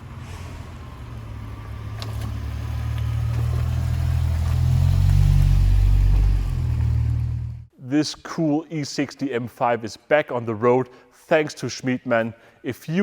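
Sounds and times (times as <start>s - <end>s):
car engine deep drone: 0.0s - 7.7s.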